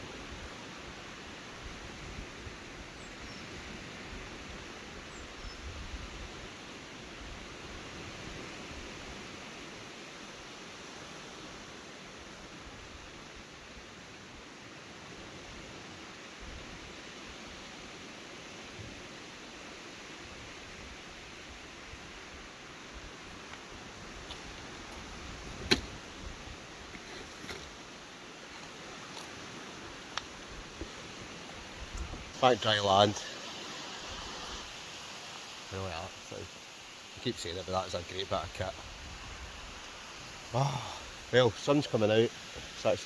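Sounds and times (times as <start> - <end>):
wind buffeting on microphone: 30.4 - 32.4.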